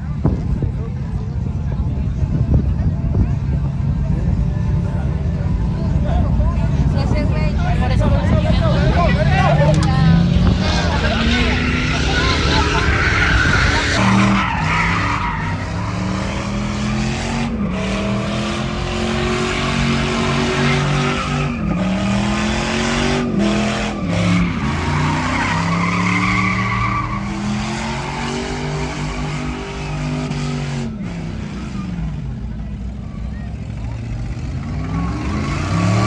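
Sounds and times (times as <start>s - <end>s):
vehicle engine revving hard: 8.0s - 32.3s, 33.7s - 36.0s
tyres squealing: 9.6s - 17.0s, 23.6s - 30.2s.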